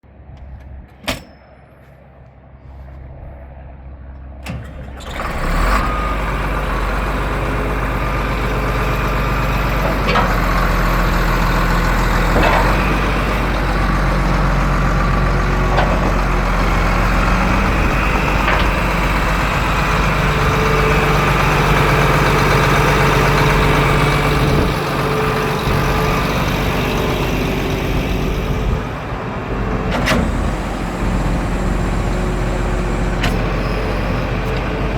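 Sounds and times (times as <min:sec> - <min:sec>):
diesel engine starting and running: 0:04.1 - 0:34.9.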